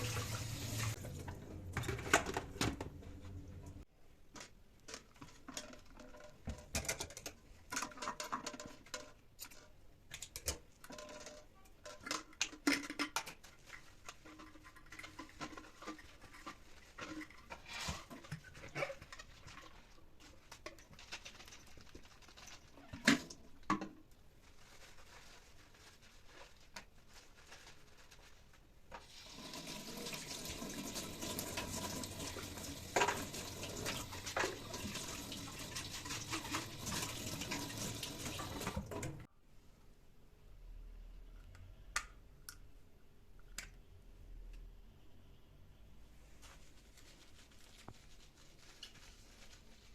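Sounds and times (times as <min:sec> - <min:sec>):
tap water running into sink: 0:00.0 - 0:01.2, 0:29.1 - 0:39.3
kitchen items clattering: 0:00.0 - 0:21.8, 0:30.8 - 0:39.3.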